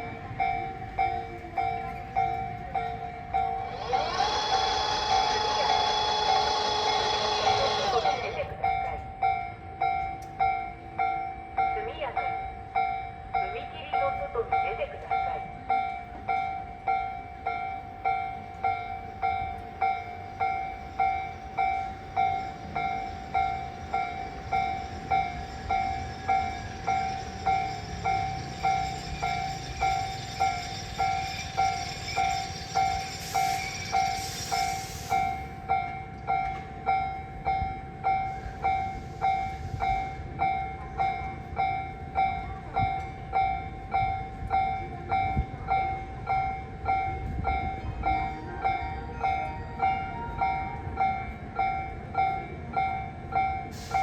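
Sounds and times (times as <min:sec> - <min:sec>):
electric train rumble: 0:00.0 - 0:54.0
level crossing alarm bell: 0:00.0 - 0:54.0
air hissing: 0:32.2 - 0:35.5, 0:53.7 - 0:54.0.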